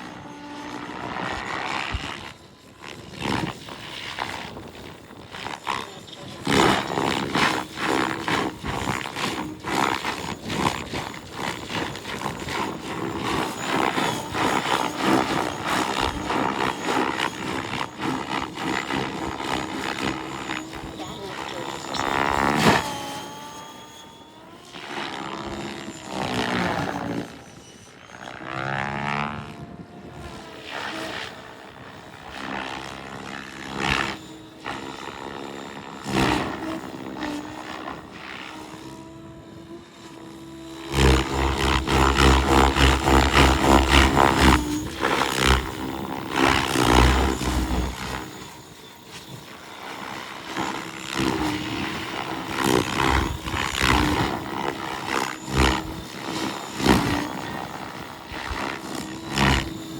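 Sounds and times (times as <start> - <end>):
rapid rotor chop: 0.0 - 27.5, 39.9 - 59.9
model helicopter rotor whine: 0.0 - 59.9.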